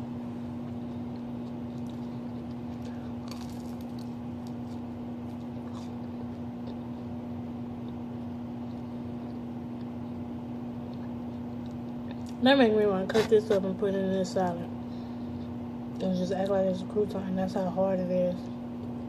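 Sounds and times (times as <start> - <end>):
electrical hum: 0.0 - 19.0
person chewing food: 0.5 - 12.4.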